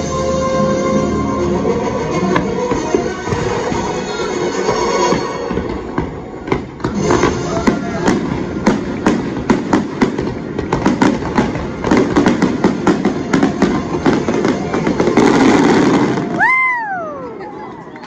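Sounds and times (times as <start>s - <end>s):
fireworks bangs and crackling: 1.6s - 18.0s
spectator whooping: 16.1s - 18.0s.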